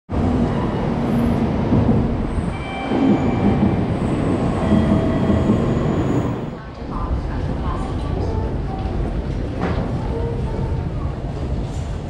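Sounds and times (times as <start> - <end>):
train wheels rumbling: 0.2 - 12.0.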